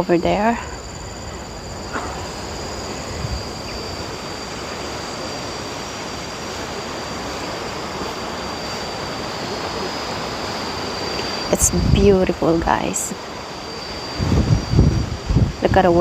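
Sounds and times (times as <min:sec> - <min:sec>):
wind on microphone: 0:00.0 - 0:06.8, 0:11.0 - 0:13.2, 0:14.0 - 0:16.0
high insect drone: 0:00.0 - 0:16.0.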